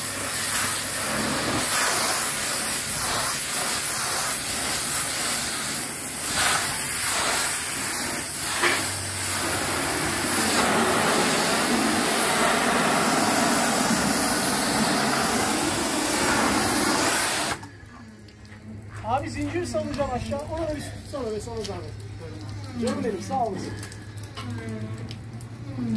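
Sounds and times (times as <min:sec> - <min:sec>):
pressure washer spraying: 0:00.0 - 0:17.7.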